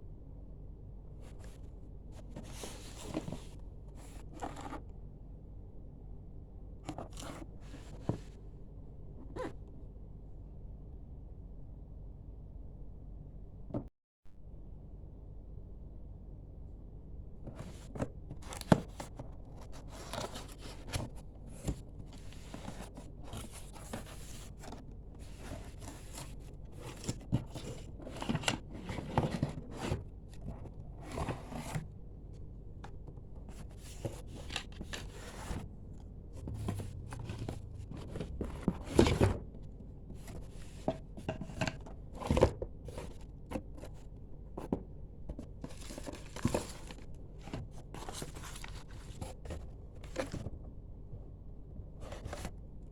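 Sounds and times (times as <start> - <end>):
packaging rustling and scraping: 1.2 - 4.8, 6.9 - 8.4, 17.4 - 31.9, 32.8 - 50.6, 52.0 - 52.6.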